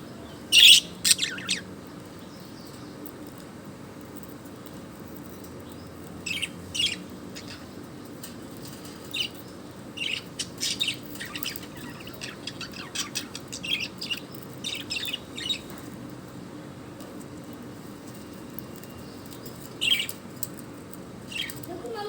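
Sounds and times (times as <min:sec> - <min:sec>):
bird chirping: 0:00.0 - 0:03.0, 0:05.6 - 0:07.8, 0:09.0 - 0:15.7.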